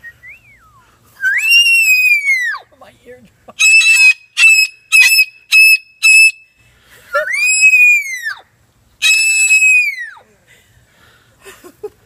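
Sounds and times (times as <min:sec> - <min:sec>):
parrot screeching: 0:01.3 - 0:02.6, 0:03.6 - 0:06.3, 0:07.2 - 0:08.4, 0:09.0 - 0:10.2.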